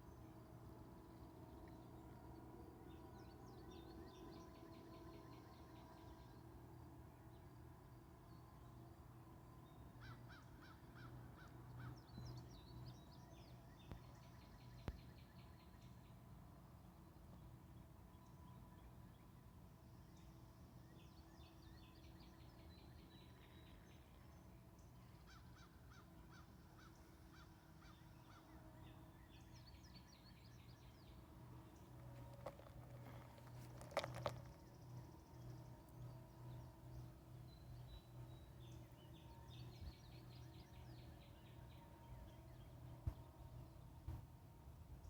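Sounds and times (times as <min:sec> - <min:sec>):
low steady hum: 0:00.0 - 0:45.0
birds chirping: 0:30.6 - 0:41.1.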